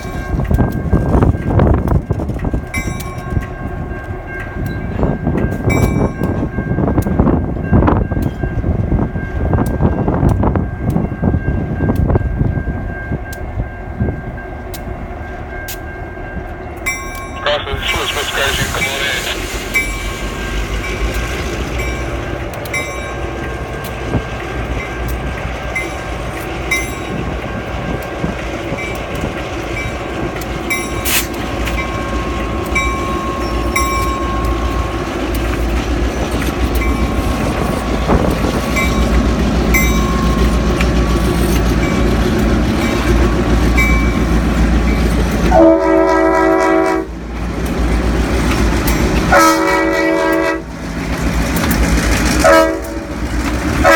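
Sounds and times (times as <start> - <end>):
freight train rumbling by: 0.0 - 53.9
train air horn chord: 45.5 - 47.1, 49.3 - 50.7, 52.4 - 53.0.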